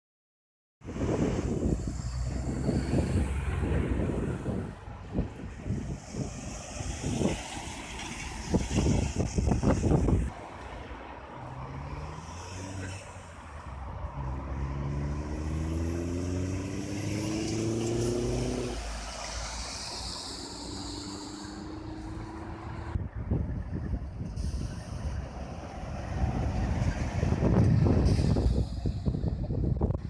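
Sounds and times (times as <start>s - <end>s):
wind buffeting microphone: 0.8s - 10.4s, 13.6s - 30.0s
passing road traffic: 0.8s - 30.0s
lorry engine pulling away: 14.2s - 23.0s.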